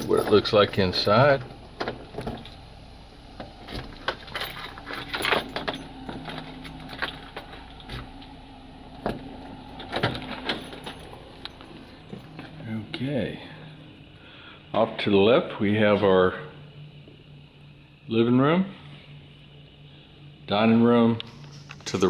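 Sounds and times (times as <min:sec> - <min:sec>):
faint steady hum: 0:00.0 - 0:22.0
door unlocking opening and closing: 0:03.6 - 0:08.1, 0:09.0 - 0:12.6.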